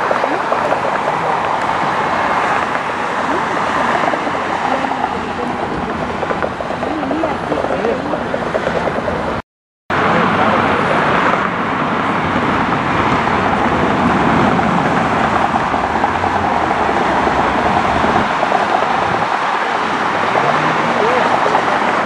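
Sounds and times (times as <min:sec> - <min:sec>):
engine roar: 0:00.0 - 0:22.0.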